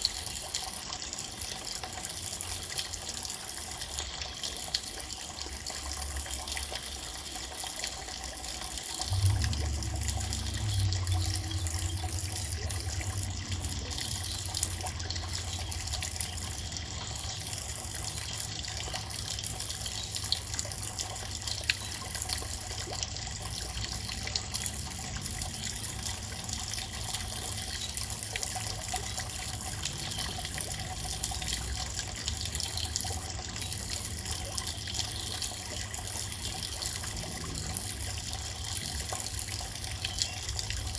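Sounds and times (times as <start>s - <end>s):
water drips ticking: 0.0s - 40.9s
steady rain: 8.1s - 15.6s
low rumble: 9.0s - 14.9s.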